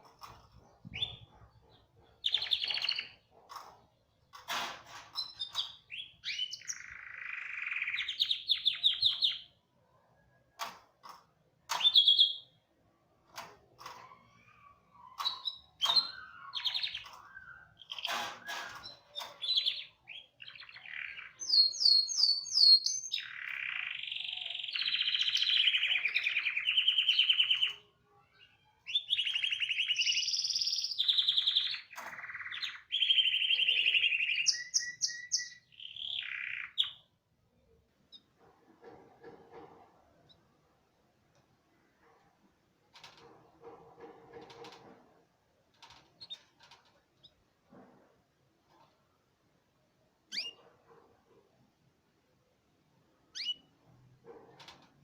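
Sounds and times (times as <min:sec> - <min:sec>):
canary singing with trills: 0:00.0 - 0:09.6, 0:11.7 - 0:12.8, 0:13.8 - 0:37.2, 0:50.3 - 0:51.0, 0:53.2 - 0:55.0.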